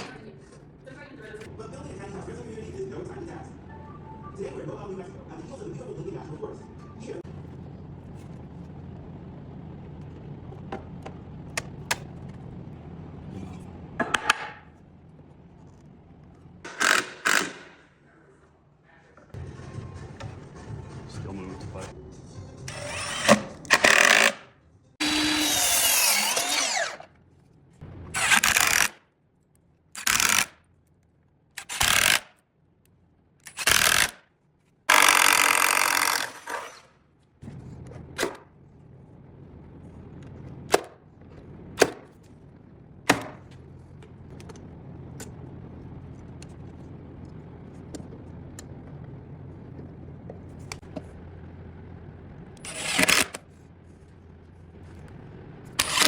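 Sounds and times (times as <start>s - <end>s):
low steady hum: 0.0s - 16.8s, 37.0s - 56.0s
power tools running: 16.7s - 17.8s, 22.7s - 24.4s, 25.0s - 27.1s, 28.1s - 29.0s, 31.6s - 32.3s, 33.4s - 34.2s, 34.9s - 36.9s, 52.6s - 53.4s, 55.6s - 56.0s.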